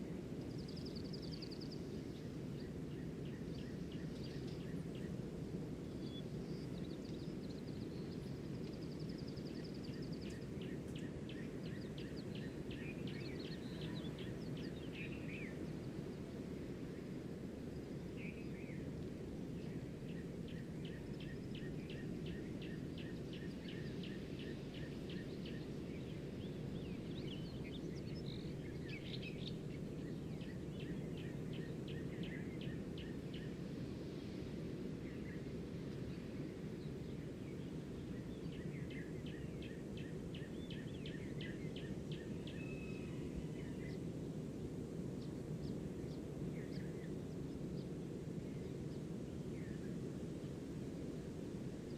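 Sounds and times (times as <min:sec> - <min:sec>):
low rushing background noise: 0:00.0 - 0:51.9
birds trilling chirps: 0:05.9 - 0:16.3, 0:19.6 - 0:33.6.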